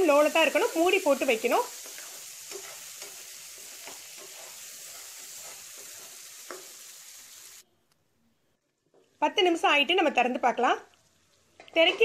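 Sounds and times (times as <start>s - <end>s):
meat sizzling in a pan: 0.0s - 7.6s
spatula scraping a pan: 0.5s - 6.9s.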